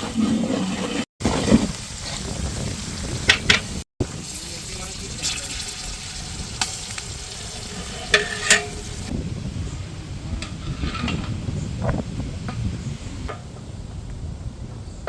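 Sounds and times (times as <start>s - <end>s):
onions frying in oil: 1.2s - 9.1s
spoon clinking against pot: 8.1s - 8.8s.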